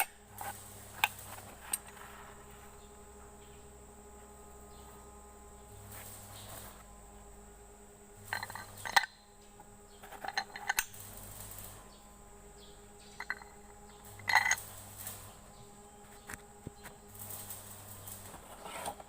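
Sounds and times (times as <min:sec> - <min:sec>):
metal pieces clinking: 0:08.2 - 0:09.2, 0:10.0 - 0:11.9, 0:13.1 - 0:15.4.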